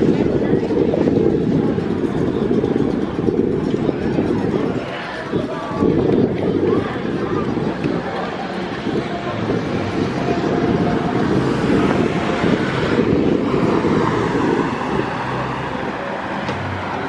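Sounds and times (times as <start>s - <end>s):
vehicle passing by: 9.8s - 17.0s.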